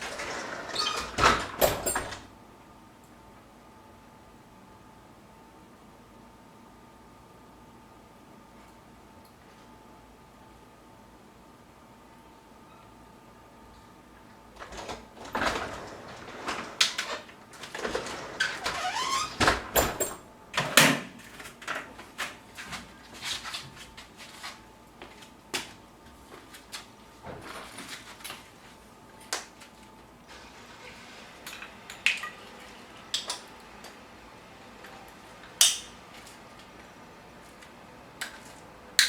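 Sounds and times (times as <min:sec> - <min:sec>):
hands clicking and tapping on metal stove: 0:35.6 - 0:35.9.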